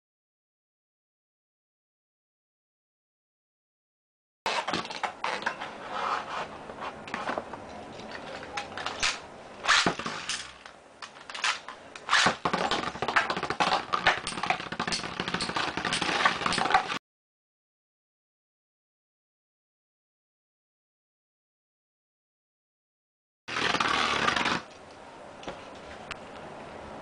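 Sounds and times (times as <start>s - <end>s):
spinning tops clacking together: 8.8s - 10.7s
spinning tops whirring and scraping: 8.9s - 10.7s, 11.4s - 17.0s, 23.5s - 24.7s.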